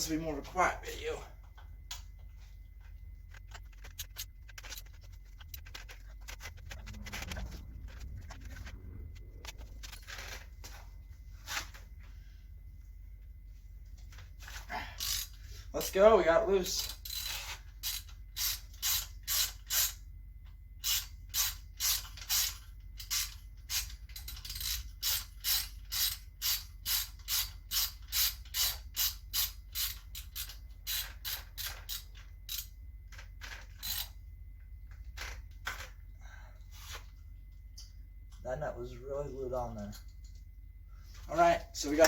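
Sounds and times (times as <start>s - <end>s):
socket ratchet wrench clicking: 15.0s - 15.4s, 20.8s - 32.7s.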